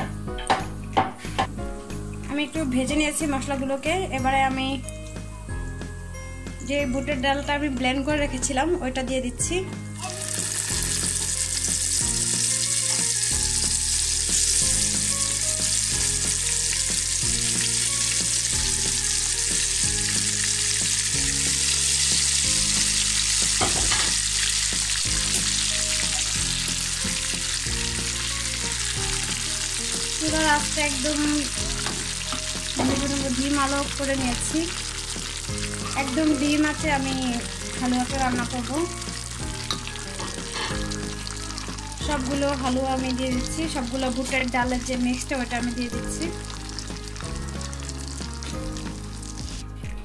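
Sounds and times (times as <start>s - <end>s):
paste sizzling in hot oil: 10.0s - 49.7s.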